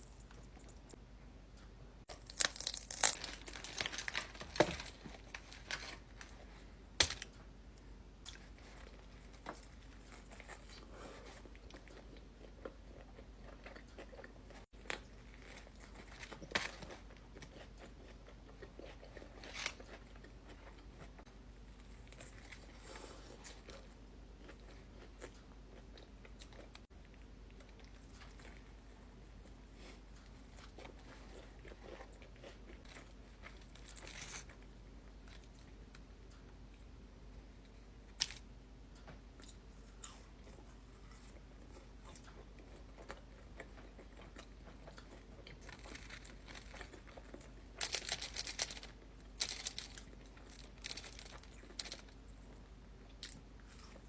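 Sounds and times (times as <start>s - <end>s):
crunchy bites: 2.1s - 6.1s
person chewing food: 2.1s - 6.8s, 8.2s - 38.5s, 39.1s - 54.0s.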